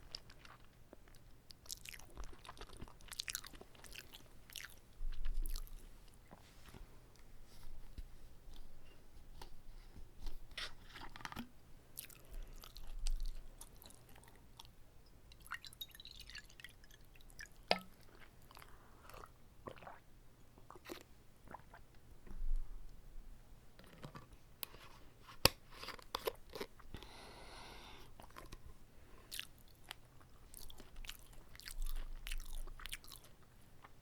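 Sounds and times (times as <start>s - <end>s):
close chewing with wet clicks: 0.0s - 6.4s, 12.0s - 20.0s, 28.2s - 28.6s, 29.3s - 34.0s.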